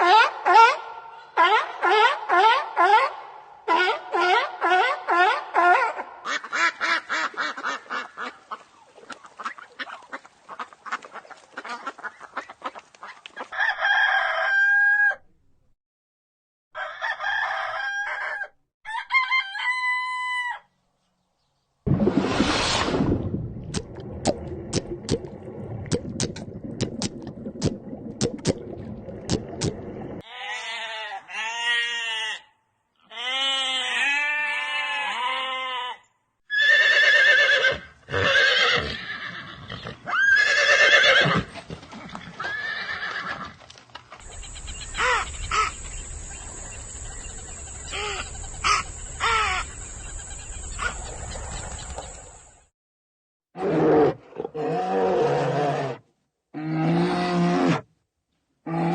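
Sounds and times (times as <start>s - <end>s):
horse whinnies and neighs: 33.3s - 43.6s, 53.6s - 56.0s
animal calls: 44.2s - 52.1s.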